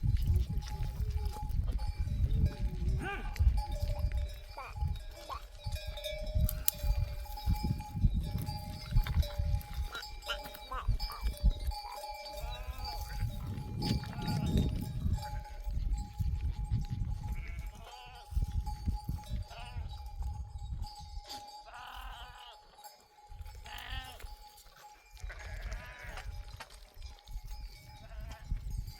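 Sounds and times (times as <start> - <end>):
livestock bell ringing: 0.1 - 28.9
sheep bleating: 3.0 - 3.5, 12.4 - 13.2, 17.3 - 18.3, 19.5 - 20.0, 21.7 - 22.6, 23.6 - 24.3, 25.3 - 26.3, 28.0 - 28.5.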